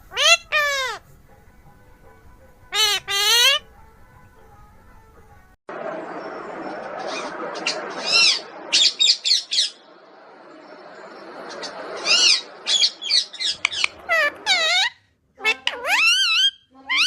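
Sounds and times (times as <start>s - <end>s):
parrot squawking: 0.0s - 1.0s, 2.7s - 3.7s, 6.9s - 9.9s, 11.6s - 17.0s.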